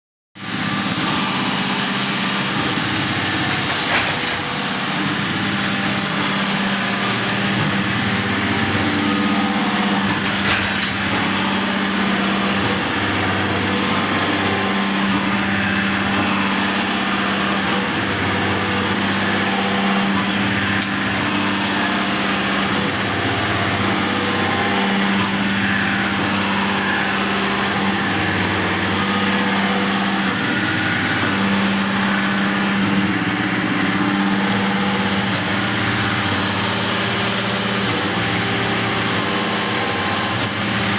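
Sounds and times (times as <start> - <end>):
surface grinder running: 0.4 - 40.9.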